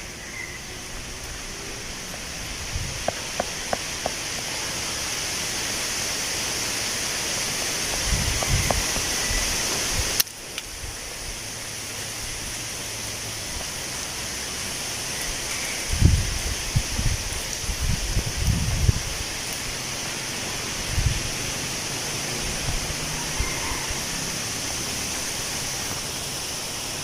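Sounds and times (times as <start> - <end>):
wind rustling tree leaves: 0.0 - 27.0.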